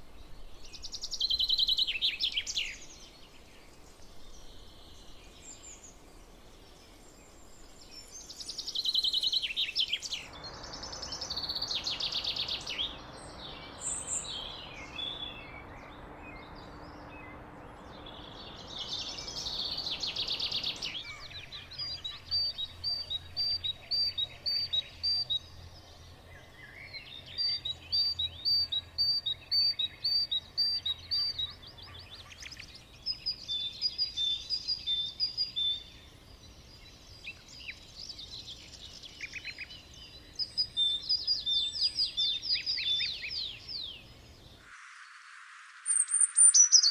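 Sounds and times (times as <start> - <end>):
songbird trilled phrases: 17.8 - 44.1, 45.9 - 46.9
high rapid bird chirps: 44.6 - 46.9.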